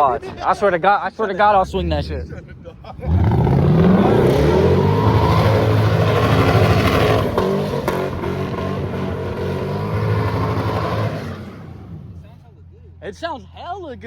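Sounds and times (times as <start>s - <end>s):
car engine revving hard: 3.0s - 12.1s.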